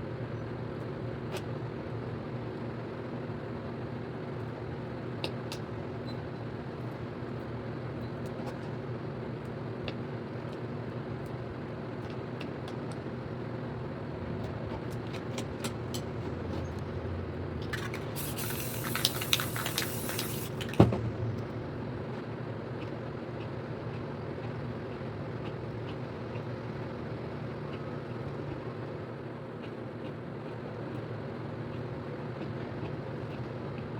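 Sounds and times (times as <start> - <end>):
mechanical hum: 0.0 - 33.9
spray paint can hissing: 17.9 - 20.8.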